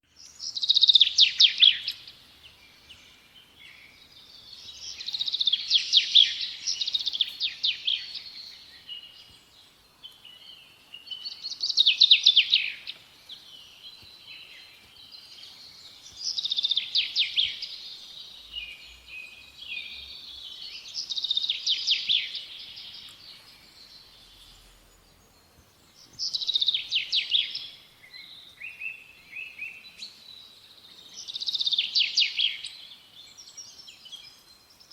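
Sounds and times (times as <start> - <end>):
songbird trilling and chirping: 0.0 - 34.9.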